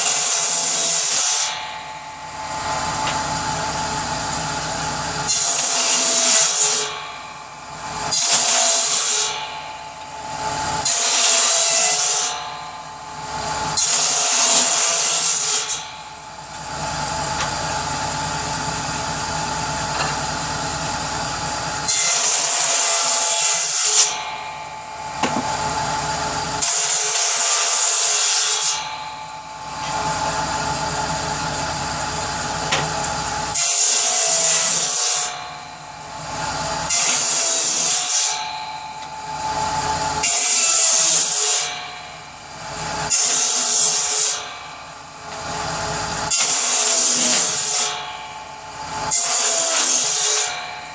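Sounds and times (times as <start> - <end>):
power saw running: 0.0 - 50.9
saw cutting through wood: 0.0 - 50.9.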